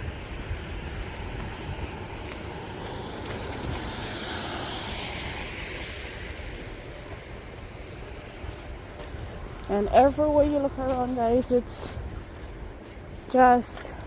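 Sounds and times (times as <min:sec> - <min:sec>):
tyre hiss on wet road: 0:00.6 - 0:08.8.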